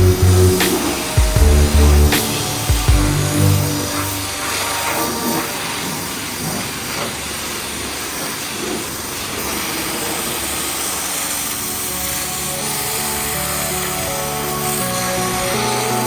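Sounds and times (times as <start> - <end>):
pressure washer spraying: 0.0 - 16.0.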